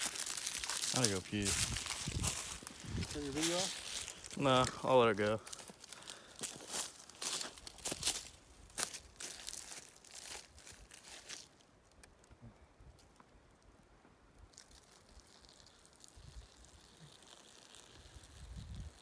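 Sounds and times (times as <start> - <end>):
close rustling and crinkling: 0.0 - 11.6.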